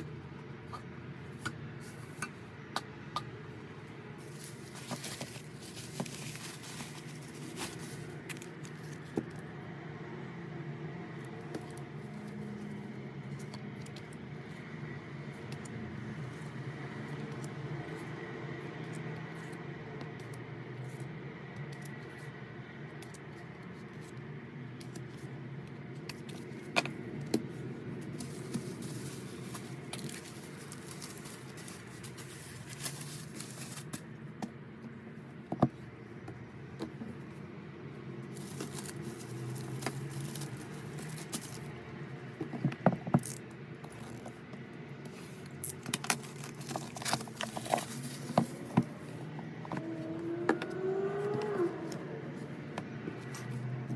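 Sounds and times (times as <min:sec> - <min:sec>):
steady low hum: 0:00.0 - 0:53.9
packaging crinkling: 0:04.2 - 0:09.0, 0:28.2 - 0:34.0, 0:38.3 - 0:41.7.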